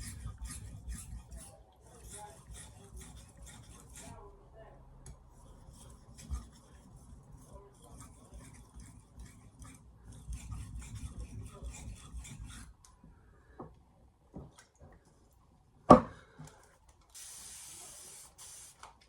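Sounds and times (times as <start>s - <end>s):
knife scraping on whetstone: 0.0s - 4.3s, 5.4s - 12.7s
short hiss: 17.1s - 18.8s.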